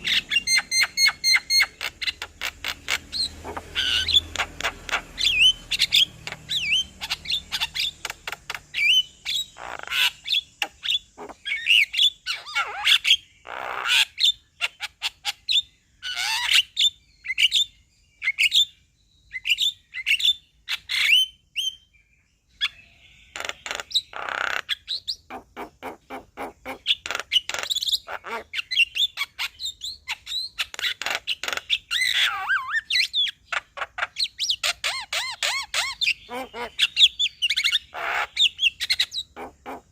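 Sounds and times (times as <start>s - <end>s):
myna singing chirps and whistles: 0.0s - 14.4s.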